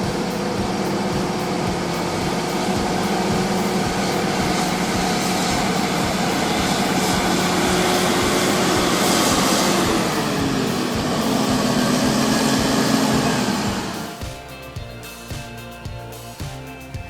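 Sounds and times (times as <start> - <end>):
heavy machinery engine running: 0.0 - 14.4.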